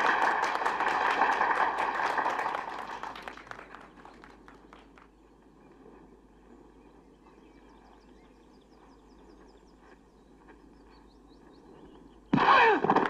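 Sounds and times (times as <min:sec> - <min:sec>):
low hum: 0:00.0 - 0:13.0
small birds chirping: 0:04.1 - 0:12.4.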